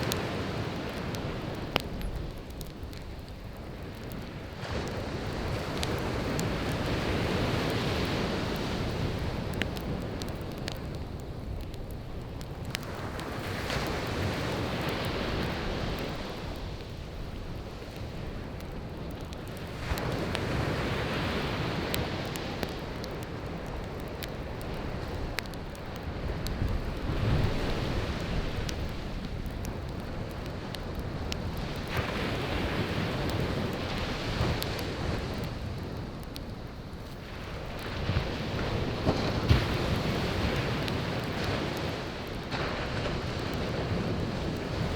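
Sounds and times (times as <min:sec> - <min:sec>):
campfire popping and crackling: 0:00.0 - 0:44.9
sea waves washing onto shore: 0:00.0 - 0:44.9
surf breaking on beach: 0:37.3 - 0:44.9.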